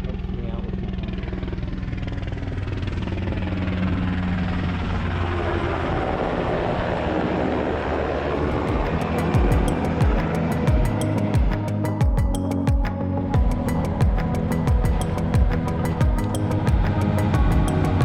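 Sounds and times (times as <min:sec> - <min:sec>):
boat engine droning: 0:00.0 - 0:18.0
music: 0:08.4 - 0:18.0.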